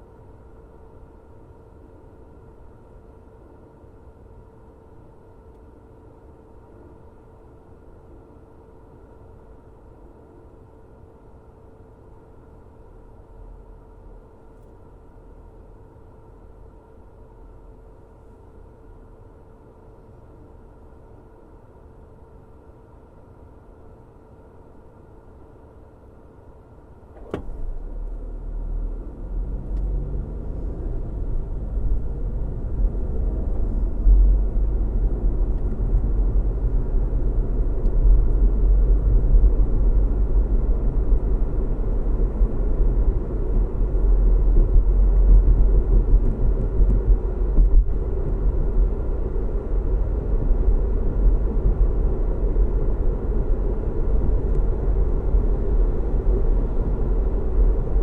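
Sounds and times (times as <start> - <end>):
road rumble: 27.1 - 58.0
car engine pulling away: 27.3 - 34.9.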